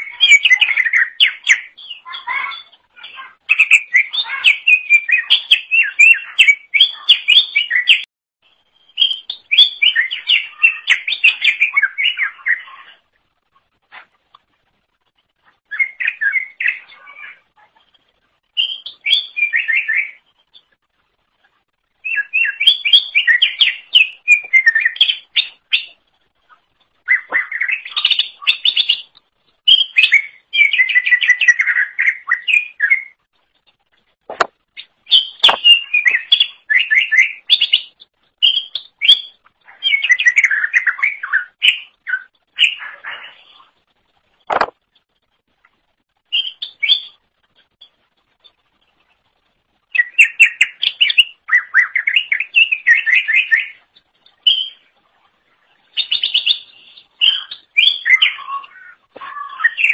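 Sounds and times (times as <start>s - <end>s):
bird chattering and whistling: 0.0s - 8.0s, 34.8s - 43.6s, 50.0s - 53.8s, 54.4s - 54.8s, 56.0s - 59.9s
sharp clicks: 44.5s - 45.1s.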